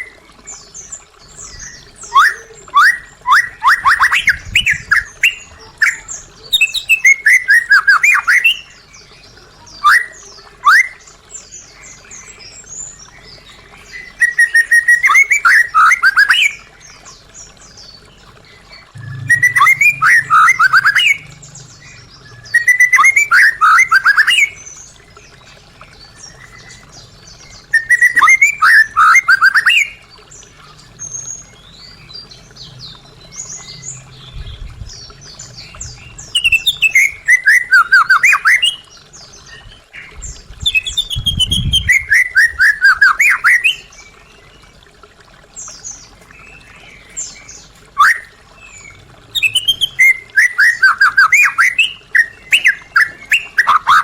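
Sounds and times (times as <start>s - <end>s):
bird singing rapid falling notes: 13.2s - 25.2s, 46.4s - 54.0s
soft high bird notes: 18.9s - 24.4s.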